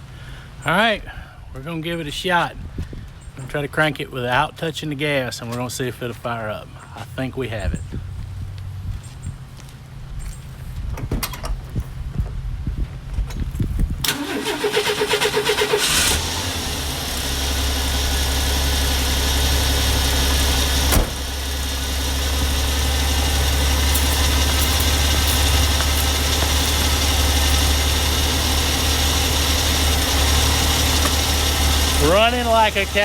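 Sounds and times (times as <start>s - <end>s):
engine starter cranking: 14.0s - 33.0s
engine idling smoothly: 14.1s - 33.0s.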